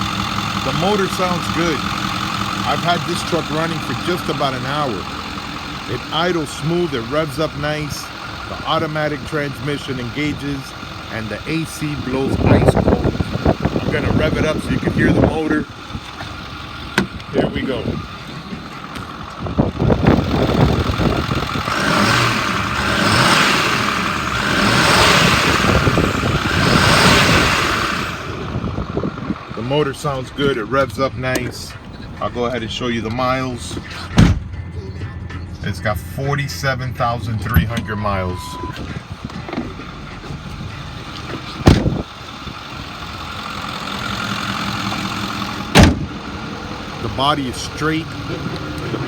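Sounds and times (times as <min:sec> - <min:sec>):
diesel engine revving: 0:00.0 - 0:49.0
sharp loud thump: 0:34.2 - 0:34.5, 0:41.6 - 0:42.0, 0:45.8 - 0:46.1.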